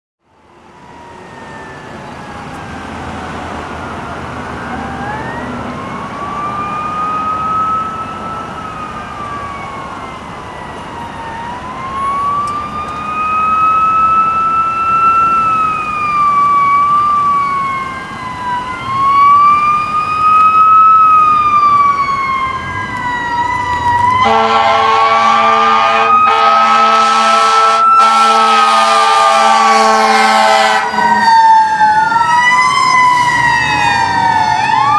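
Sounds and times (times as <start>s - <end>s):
emergency sirens wailing: 0.2s - 34.9s
loud horn blasts: 24.2s - 31.4s.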